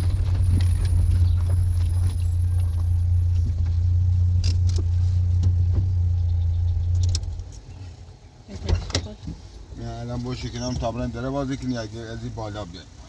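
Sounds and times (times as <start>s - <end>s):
engine running: 0.0s - 10.4s.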